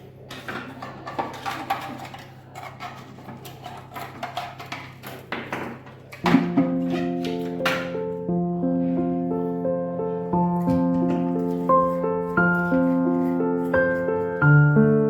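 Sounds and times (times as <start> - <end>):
appliance parts clattering: 0.0 - 8.1.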